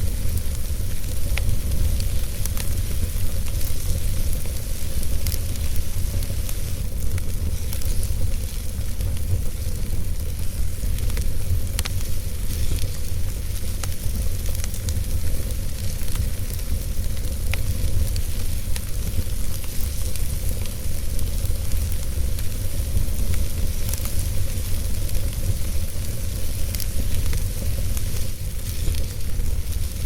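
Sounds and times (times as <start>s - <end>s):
fire rumbling and hissing: 0.0s - 30.0s
logs crackling and popping: 0.0s - 30.0s.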